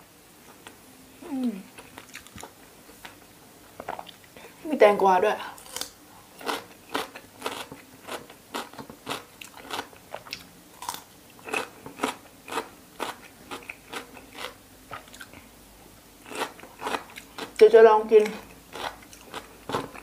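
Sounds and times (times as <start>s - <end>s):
cucumber crunching while chewed: 1.8s - 3.2s, 5.6s - 15.5s, 16.2s - 17.6s, 18.2s - 20.0s.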